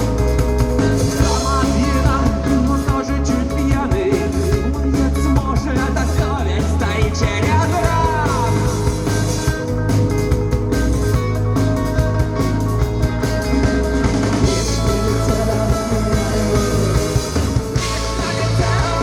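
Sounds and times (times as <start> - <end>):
rock band playing live: 0.0 - 19.0
lead singer singing: 0.8 - 9.1, 14.5 - 19.0.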